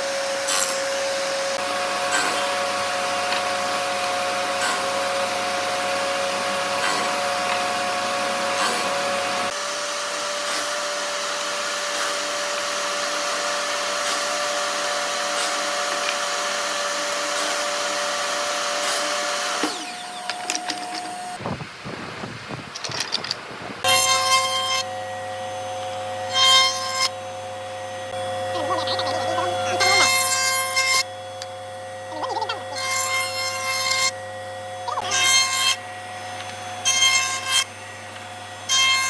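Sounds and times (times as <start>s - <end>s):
power tool motor whining: 0.0s - 21.4s, 23.8s - 38.9s
handling noises: 19.6s - 21.4s, 22.6s - 23.6s.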